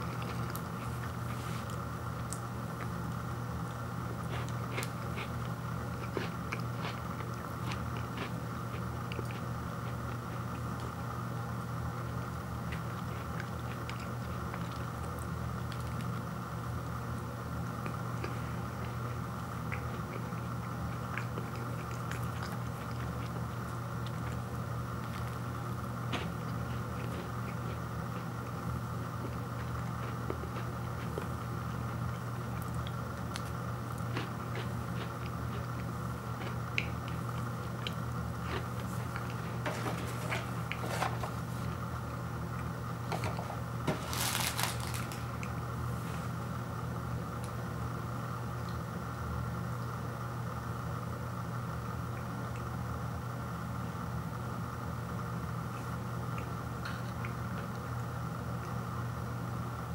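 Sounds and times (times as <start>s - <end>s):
person chewing pastry: 0.0s - 11.2s, 12.0s - 16.5s, 17.1s - 45.6s
steady low hum: 0.0s - 59.9s
cardboard box rustling: 43.2s - 45.2s.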